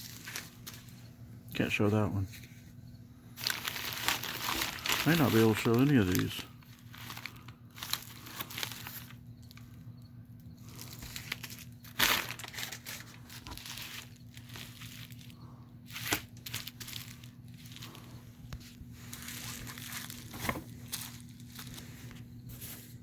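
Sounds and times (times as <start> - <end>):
packaging crinkling and rustling: 0.0 - 23.0
packaging ripping: 3.4 - 9.8, 10.6 - 22.2.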